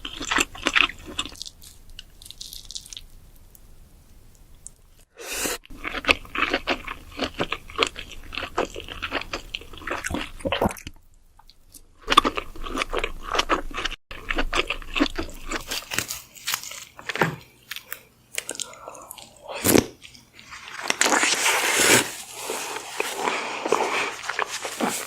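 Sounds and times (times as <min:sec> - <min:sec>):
crab shell crunching: 0:00.0 - 0:03.2
wet chewing: 0:05.6 - 0:21.3, 0:22.7 - 0:25.0.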